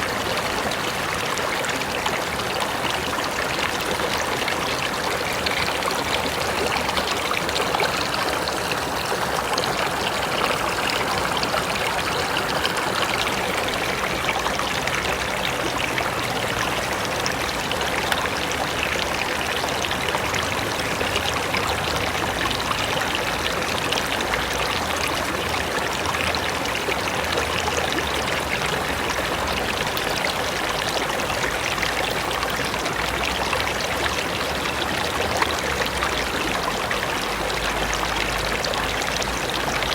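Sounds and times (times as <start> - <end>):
river rushing over rocks: 0.0 - 24.9.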